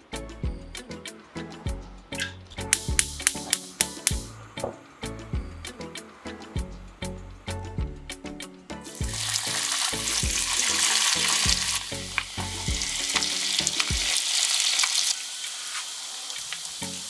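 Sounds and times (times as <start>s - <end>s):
food sizzling in oil: 8.9s - 17.0s.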